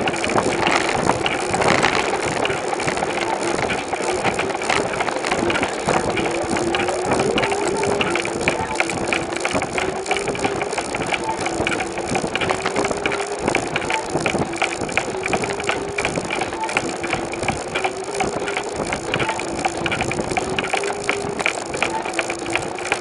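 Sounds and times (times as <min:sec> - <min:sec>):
bicycle rattling and clicking: 0:00.0 - 0:23.0
wavering hum: 0:00.0 - 0:23.0.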